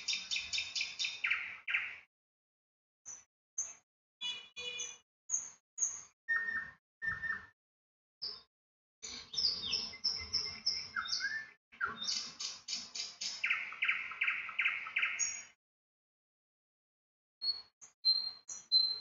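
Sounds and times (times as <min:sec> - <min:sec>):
birds chirping: 0:00.0 - 0:02.1, 0:08.2 - 0:15.5.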